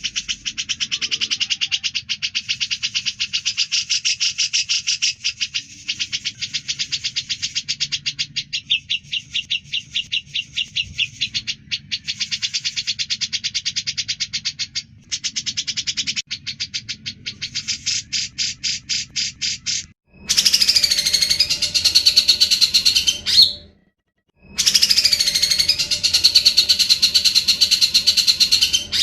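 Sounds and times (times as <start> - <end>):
bird chattering song: 0.0 - 23.7, 24.4 - 29.0.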